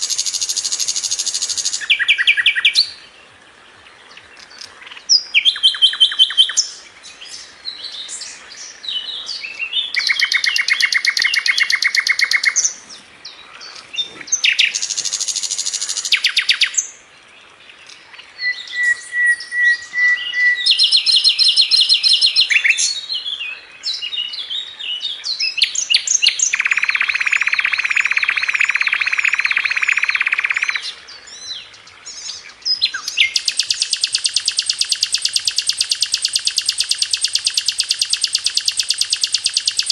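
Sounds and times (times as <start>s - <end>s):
flycatcher singing fast trills: 0.0s - 3.0s, 9.2s - 12.8s, 13.7s - 16.9s, 18.4s - 23.0s, 25.4s - 30.9s, 32.1s - 39.9s.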